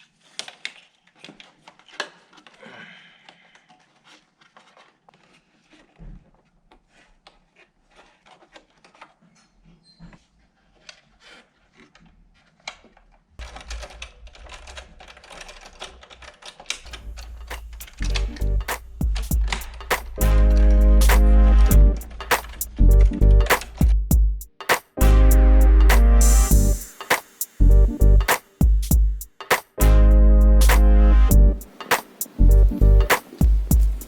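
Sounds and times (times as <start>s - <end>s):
clicking and rattling plastic parts: 0.0s - 9.4s, 11.7s - 17.4s
low hum: 16.9s - 24.4s, 25.0s - 27.0s, 27.6s - 28.3s, 32.4s - 33.1s.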